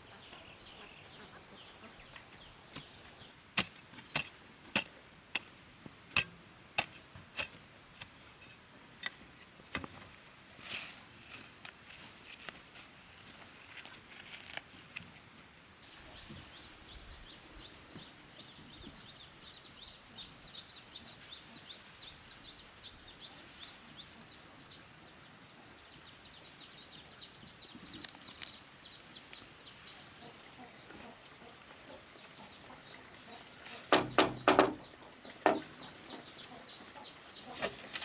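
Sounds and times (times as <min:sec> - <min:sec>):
birds chirping rapidly: 0:31.9 - 0:37.7
sharp knocks: 0:33.9 - 0:34.8, 0:35.5 - 0:35.7.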